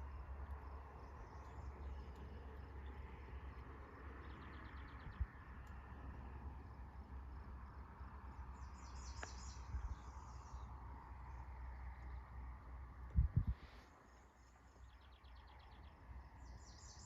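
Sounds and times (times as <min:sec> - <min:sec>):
steady low rumble: 0:00.0 - 0:16.6
insects calling: 0:00.0 - 0:17.0
bird chirping: 0:04.1 - 0:05.3, 0:08.3 - 0:11.4, 0:14.0 - 0:17.0.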